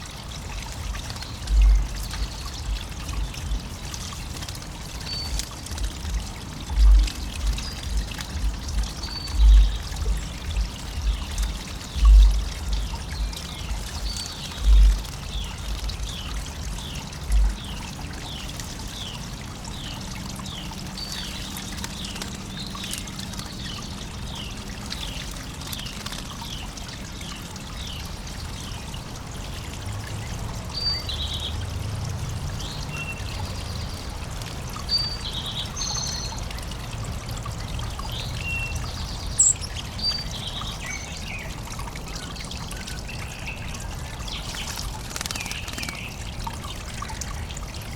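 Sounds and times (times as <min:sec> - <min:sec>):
songbirds chirping: 0:00.0 - 0:47.9
water trickling: 0:00.0 - 0:47.9
low thumps: 0:05.7 - 0:15.0.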